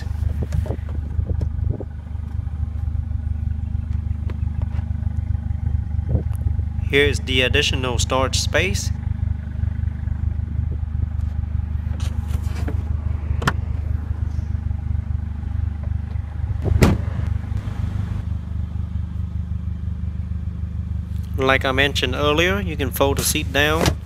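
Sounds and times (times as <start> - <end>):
low rumble: 0.0 - 22.9
trunk floor cover thump: 16.6 - 17.2.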